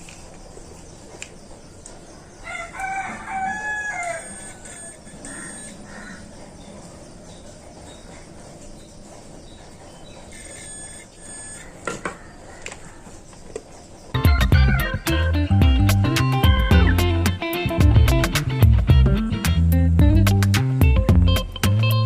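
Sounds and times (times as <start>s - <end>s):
birds chirping: 0.0s - 18.4s
guitar music: 14.2s - 22.0s.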